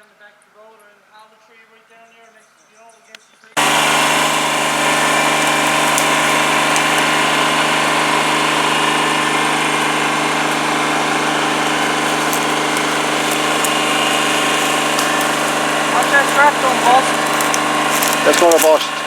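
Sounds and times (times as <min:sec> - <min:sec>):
vehicle engine running: 0:03.6 - 0:19.0.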